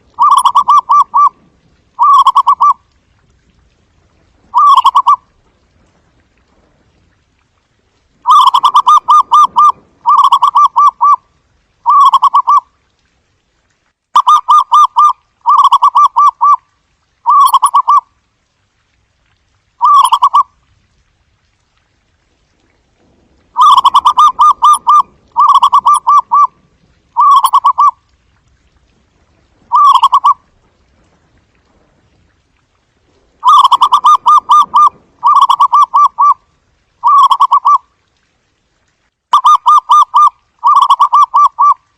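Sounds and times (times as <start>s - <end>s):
dove trilled cooing: 0.2s - 1.4s, 2.0s - 2.8s, 4.5s - 5.2s, 8.3s - 11.2s, 23.6s - 26.6s, 27.2s - 28.0s, 29.7s - 30.4s, 33.4s - 36.4s, 37.0s - 37.8s.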